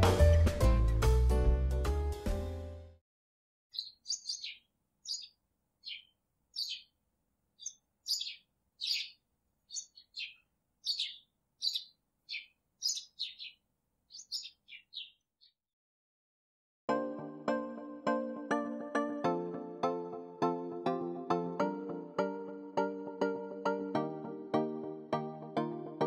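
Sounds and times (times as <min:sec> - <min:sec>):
small birds chirping: 0:03.7 - 0:15.6.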